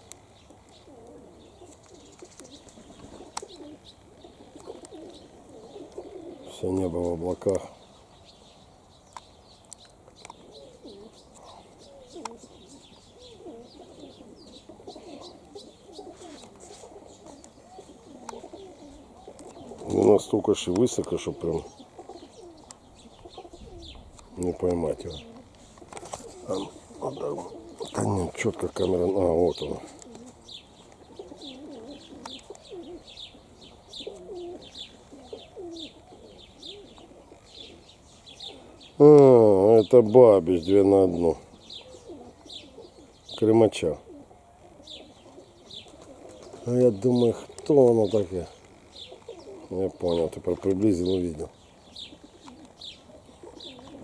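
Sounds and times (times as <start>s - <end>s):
bird chirps: 0.0s - 54.0s
pigeons cooing: 0.0s - 54.0s.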